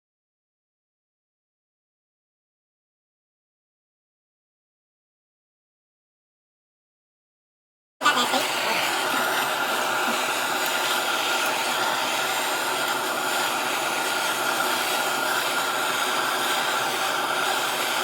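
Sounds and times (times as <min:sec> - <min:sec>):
heat gun blowing air: 0:08.0 - 0:18.0.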